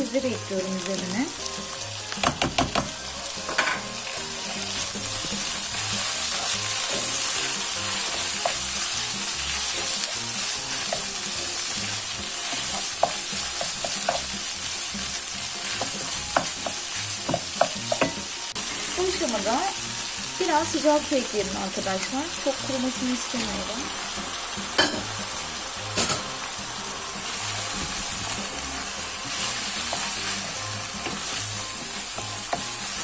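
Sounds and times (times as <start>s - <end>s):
food sizzling in a frying pan: 0.0s - 33.0s
spoon tapping a pan: 2.1s - 3.9s, 12.2s - 14.4s, 15.8s - 18.3s.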